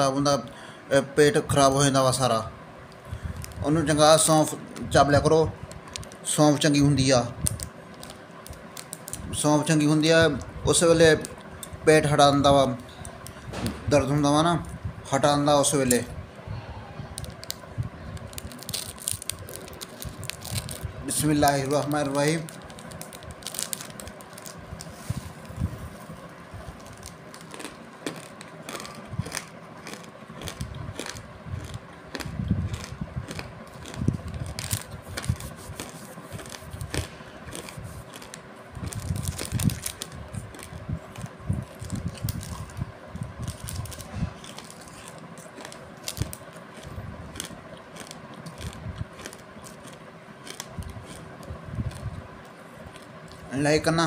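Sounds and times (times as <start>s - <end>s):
faint steady hum: 0.0s - 54.0s
seeds crunching while chewed: 7.4s - 10.5s, 17.1s - 25.7s, 26.6s - 53.6s
plastic bag crinkling: 17.2s - 42.8s, 43.4s - 52.0s.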